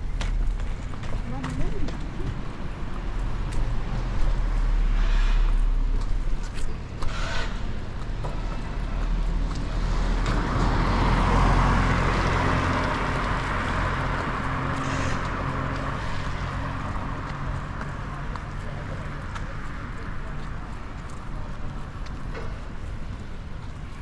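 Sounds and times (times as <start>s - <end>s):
vehicle engine running: 0.0s - 24.0s
tyre hiss on wet road: 4.6s - 6.0s, 14.8s - 15.4s.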